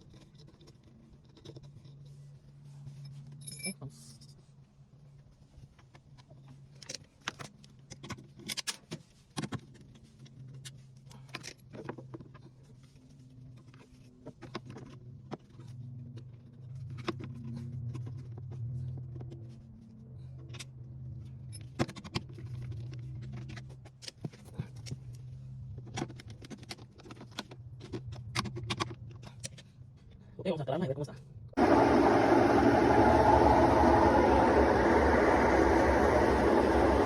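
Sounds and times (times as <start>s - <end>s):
steady low hum: 31.5s - 37.0s.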